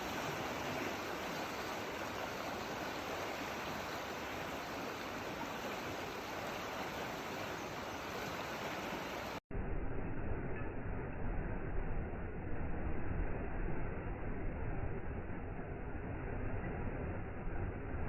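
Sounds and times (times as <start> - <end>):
rushing water: 0.0 - 9.4.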